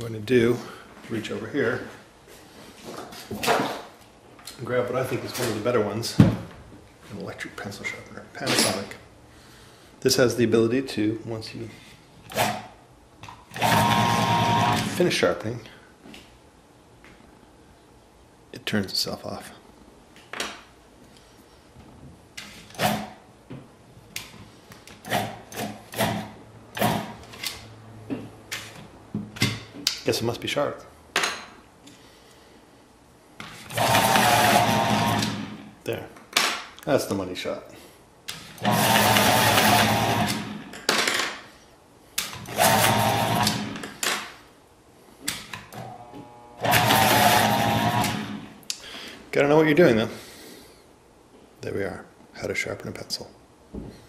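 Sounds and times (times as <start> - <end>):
electric pencil sharpener humming: 13.5 - 15.0, 33.7 - 35.5, 38.6 - 40.6, 42.5 - 43.7, 45.8 - 48.5.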